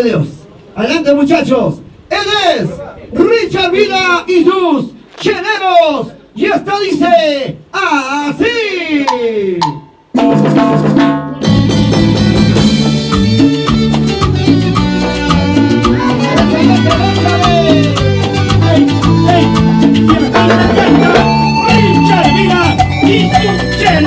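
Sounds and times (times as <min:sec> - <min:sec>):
latin dance band playing: 0:09.0 - 0:24.0.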